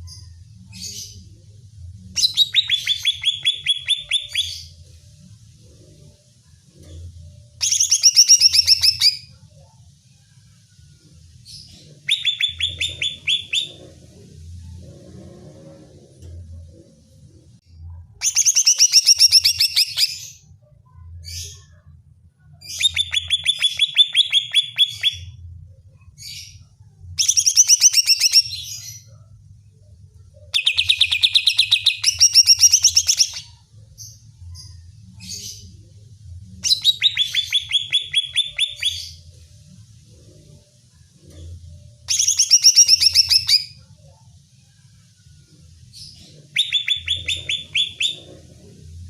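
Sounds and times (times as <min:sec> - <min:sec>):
bird chirps: 0:02.2 - 0:04.8, 0:07.6 - 0:09.4, 0:11.6 - 0:14.0, 0:18.2 - 0:20.4, 0:22.6 - 0:25.4, 0:26.2 - 0:29.2, 0:30.5 - 0:35.8, 0:36.6 - 0:39.3, 0:42.1 - 0:43.8, 0:46.0 - 0:48.8
bird trilling song: 0:02.2 - 0:04.8, 0:07.6 - 0:09.4, 0:11.5 - 0:14.0, 0:18.2 - 0:20.5, 0:22.6 - 0:25.4, 0:26.0 - 0:29.1, 0:30.5 - 0:35.8, 0:36.6 - 0:39.3, 0:42.1 - 0:43.8, 0:45.9 - 0:49.0.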